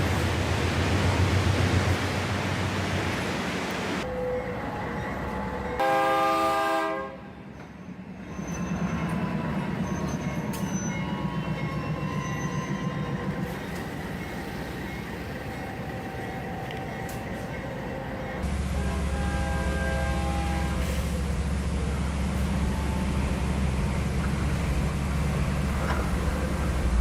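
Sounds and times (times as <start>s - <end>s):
train rumbling past: 0.0s - 27.0s
train horn blast: 5.8s - 7.3s, 18.4s - 21.2s
wheels clattering on rails: 23.5s - 27.0s.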